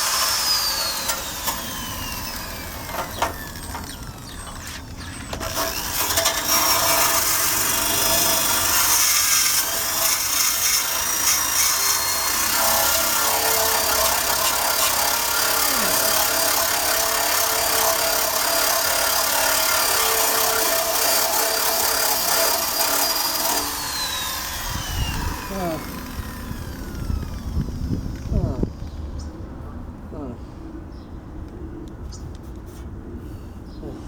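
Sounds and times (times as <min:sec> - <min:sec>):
drill wire brush scrubbing steel: 0:00.0 - 0:27.2.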